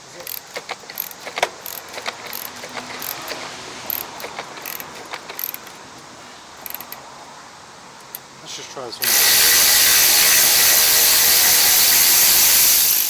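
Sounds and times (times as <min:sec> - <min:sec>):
socket ratchet clicking: 0:00.2 - 0:05.8, 0:06.6 - 0:07.0, 0:09.0 - 0:13.0.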